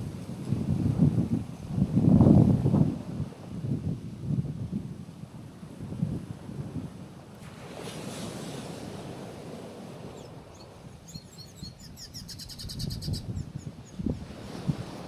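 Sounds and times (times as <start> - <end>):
waves on rocky shore: 7.2 - 11.1, 14.0 - 15.0
small bird chirping and trilling: 10.2 - 14.3.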